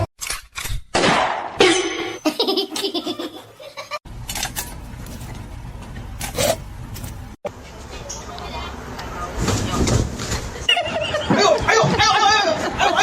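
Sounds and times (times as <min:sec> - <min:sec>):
person laughing: 0:02.2 - 0:04.0.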